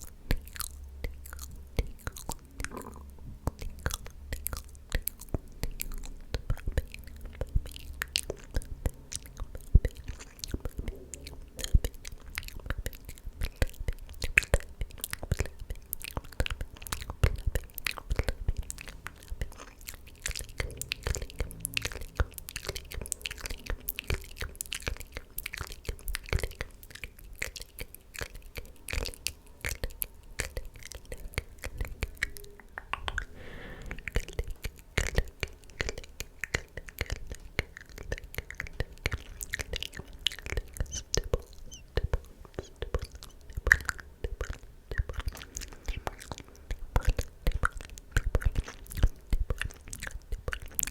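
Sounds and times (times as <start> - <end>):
wet mouth clicks and smacks: 0.0 - 33.3, 34.0 - 50.9
unintelligible whispering: 9.2 - 12.0.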